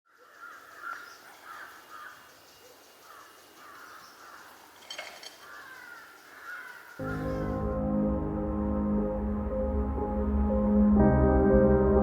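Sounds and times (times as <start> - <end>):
crows cawing: 0.1 - 2.4, 3.0 - 7.8
quiet rural ambience: 0.1 - 7.7.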